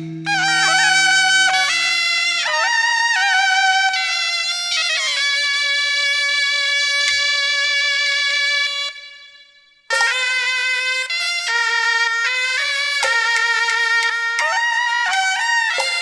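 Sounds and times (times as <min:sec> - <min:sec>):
double-reed horn melody: 0:00.0 - 0:16.0.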